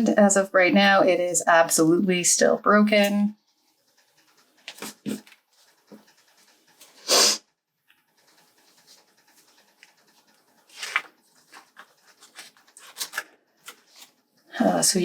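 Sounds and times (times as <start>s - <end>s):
sharp sniffs: 6.9s - 7.4s.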